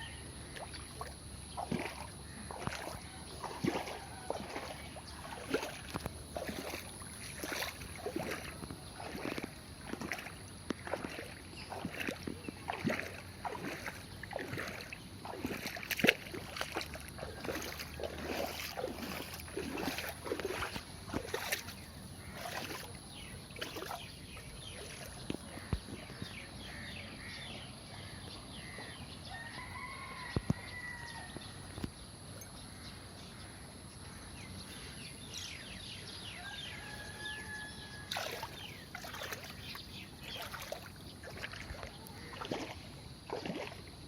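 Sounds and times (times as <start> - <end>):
floodwater splashing: 0.0 - 27.4, 38.0 - 44.0.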